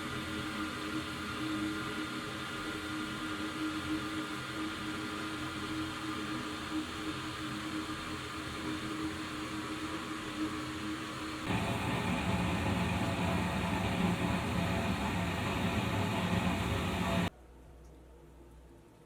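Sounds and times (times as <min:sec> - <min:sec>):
burner and air blower rushing: 0:11.5 - 0:17.3
steady hum: 0:11.5 - 0:17.3.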